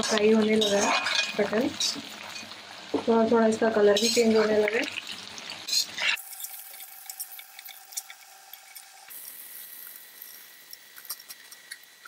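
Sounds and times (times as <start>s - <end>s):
metal spatula scraping: 0.0s - 2.5s, 5.6s - 8.9s
frying sizzle with crackles: 0.0s - 12.0s.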